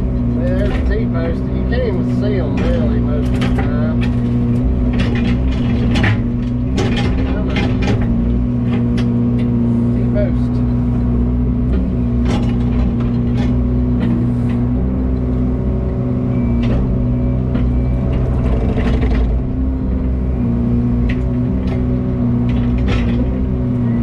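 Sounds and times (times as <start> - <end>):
heavy equipment engine running: 0.0 - 24.0
clicks and rattles: 0.5 - 9.6, 12.2 - 14.6, 17.5 - 19.5, 21.0 - 23.5.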